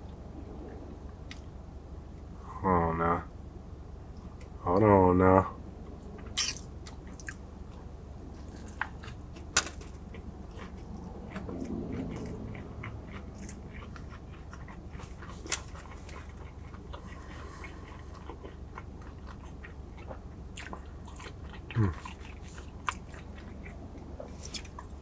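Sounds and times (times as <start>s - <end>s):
man chewing food: 5.8s - 25.0s.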